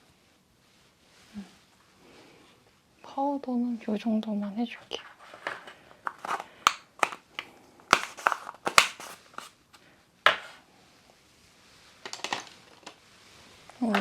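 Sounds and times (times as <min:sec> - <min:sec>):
plastic containers clicking and tapping: 0:05.3 - 0:09.5, 0:10.3 - 0:10.6, 0:12.1 - 0:13.0, 0:13.8 - 0:14.0
compact case snapping shut: 0:06.1 - 0:09.5.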